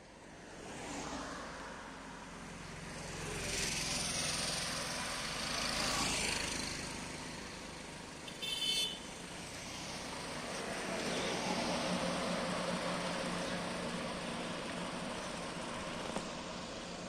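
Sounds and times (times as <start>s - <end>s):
car horn toot: 8.3s - 9.0s.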